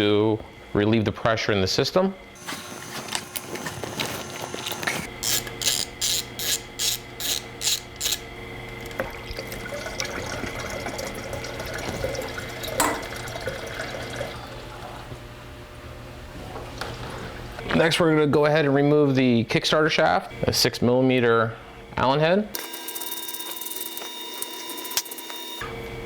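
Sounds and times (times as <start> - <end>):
ratchet wrench clicking: 5.2 - 8.2.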